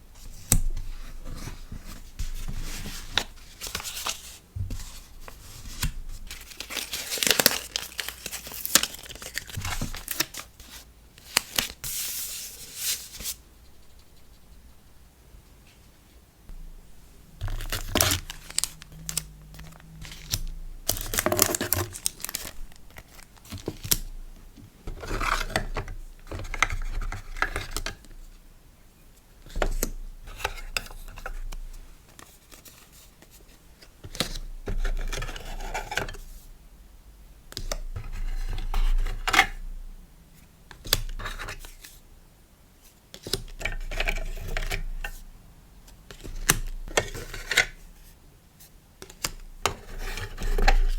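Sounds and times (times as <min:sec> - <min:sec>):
packaging crinkling and tearing: 0:06.3 - 0:10.5, 0:17.4 - 0:24.0.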